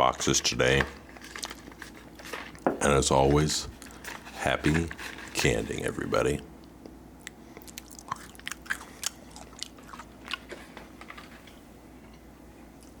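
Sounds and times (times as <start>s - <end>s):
person chewing crunchy chocolate: 1.0s - 2.6s, 3.7s - 4.4s, 7.2s - 11.6s.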